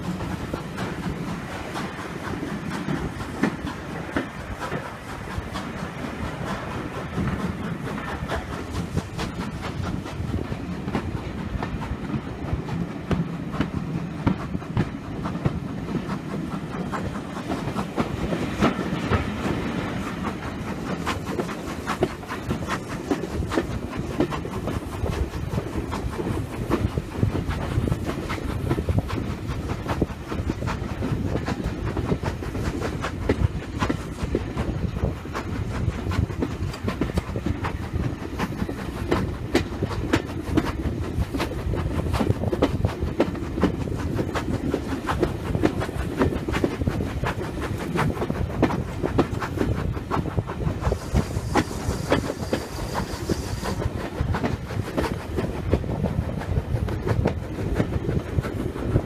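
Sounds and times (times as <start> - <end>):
train wheels rumbling on track: 0.0 - 59.0
wheels clicking and knocking: 0.0 - 59.0
clicks and knocks from track: 10.8 - 27.0.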